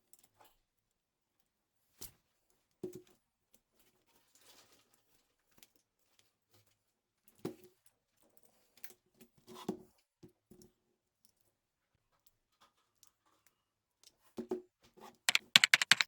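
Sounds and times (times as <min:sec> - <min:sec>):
faint clicks and knocks of handling: 0:15.3 - 0:16.0.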